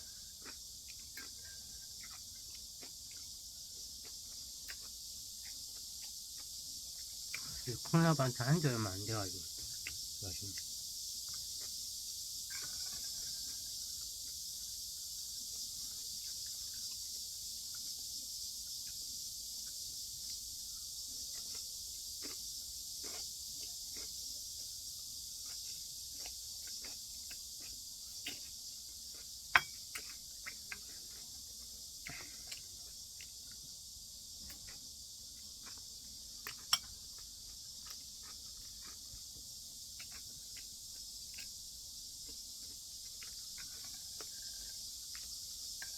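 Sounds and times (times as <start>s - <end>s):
person chewing: 0.0s - 7.8s, 9.5s - 11.9s, 12.6s - 45.9s
steady high hiss: 4.6s - 25.8s.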